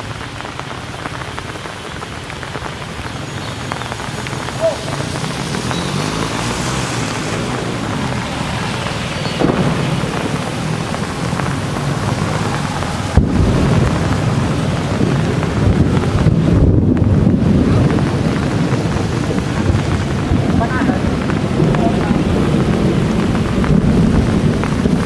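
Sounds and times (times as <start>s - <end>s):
steady rain falling: 0.0s - 25.0s
low rumble: 7.0s - 25.0s
wind buffeting microphone: 7.0s - 25.0s.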